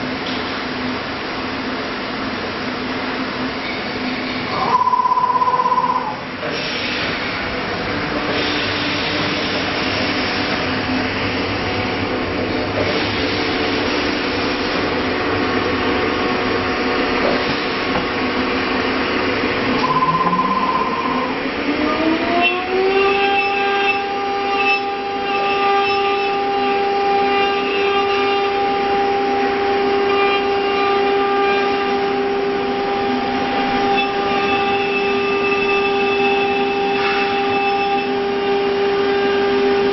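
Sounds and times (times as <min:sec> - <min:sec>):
short beep: 0:04.6 - 0:06.2, 0:19.8 - 0:21.4
machine hum: 0:18.7 - 0:22.8.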